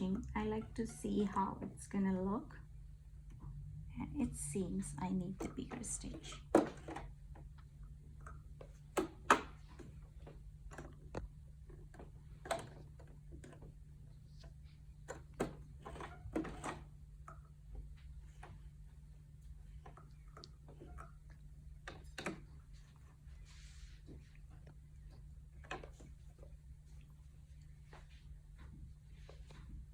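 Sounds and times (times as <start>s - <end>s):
steady low hum: 0.0s - 29.9s
clicks and knocks handling sewing machine: 5.3s - 7.6s, 8.8s - 17.5s.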